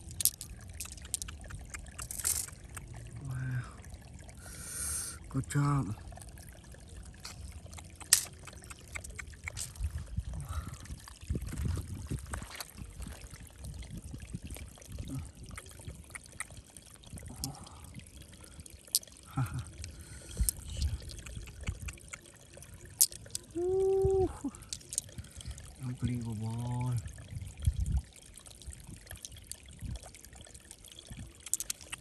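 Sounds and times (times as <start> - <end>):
water trickling and splashing: 0.0 - 32.0.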